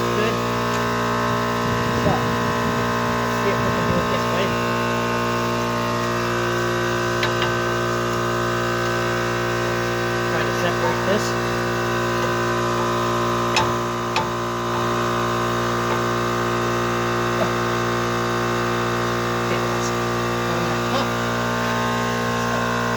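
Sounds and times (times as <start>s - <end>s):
air compressor humming: 0.0s - 22.9s.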